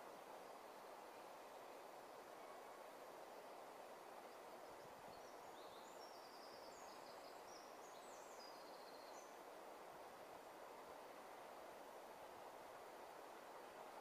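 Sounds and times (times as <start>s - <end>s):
faint steady hiss: 0.0s - 14.0s
bird singing faintly: 5.1s - 9.4s.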